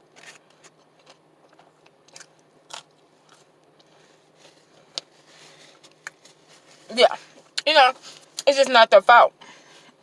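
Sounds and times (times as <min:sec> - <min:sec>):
person chewing food: 0:00.2 - 0:07.6.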